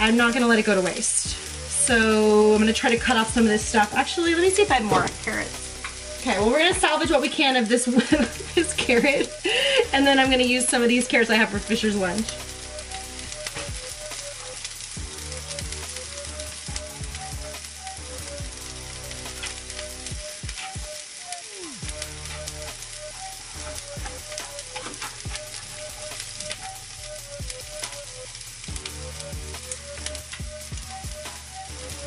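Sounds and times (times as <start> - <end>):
onion sizzling in a frying pan: 0.0 - 32.0
grime beat with bass line: 3.3 - 7.2, 21.6 - 32.0.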